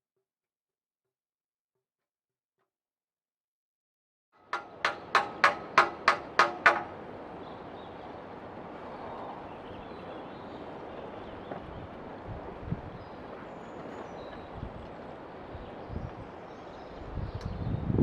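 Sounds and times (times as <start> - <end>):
hammer blows on metal: 4.4 - 7.0.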